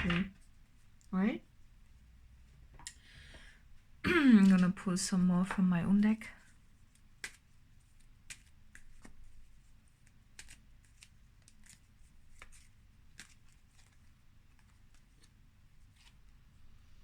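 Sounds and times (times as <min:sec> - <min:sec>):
cards shuffled and snapped: 0:10.0 - 0:14.0.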